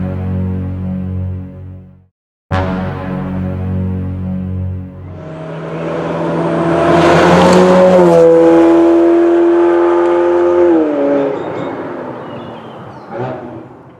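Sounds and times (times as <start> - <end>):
sports car engine accelerating hard: 5.0 - 11.8.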